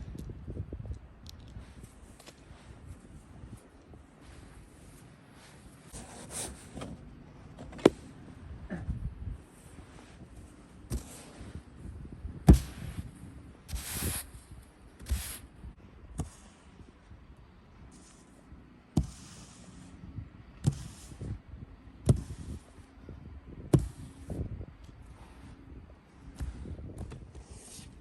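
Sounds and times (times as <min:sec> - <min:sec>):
snow brush thumps and swishes: 0:09.8 - 0:11.7, 0:12.4 - 0:13.1, 0:13.7 - 0:14.4, 0:15.0 - 0:15.4, 0:22.0 - 0:22.7.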